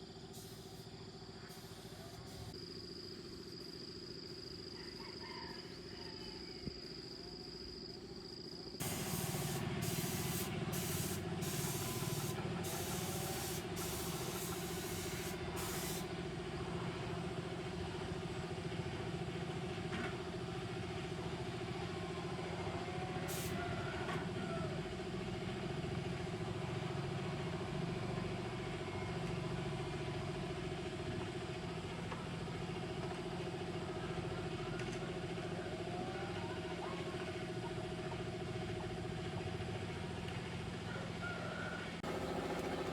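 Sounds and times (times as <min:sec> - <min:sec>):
sharp hissing bursts of spray: 0:00.4 - 0:00.9, 0:01.5 - 0:02.6, 0:08.8 - 0:16.1, 0:23.3 - 0:23.6
motor running steadily: 0:08.8 - 0:23.3, 0:42.0 - 0:42.9.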